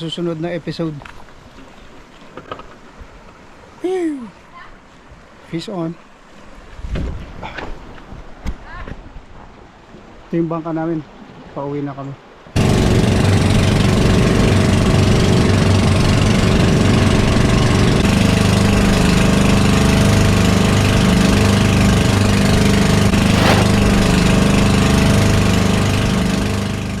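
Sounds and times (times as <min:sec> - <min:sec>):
brief sharp sound: 0:23.2 - 0:23.9.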